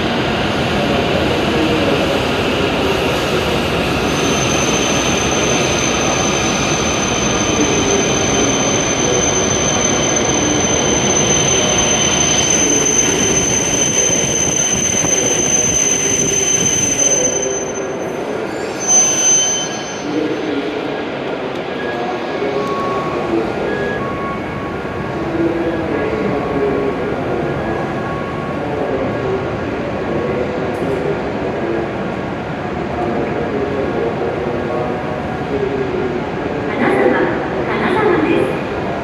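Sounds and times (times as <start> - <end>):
train rumbling: 0.0 - 39.0
high-pitched brake squeal: 4.0 - 20.8, 21.8 - 24.8.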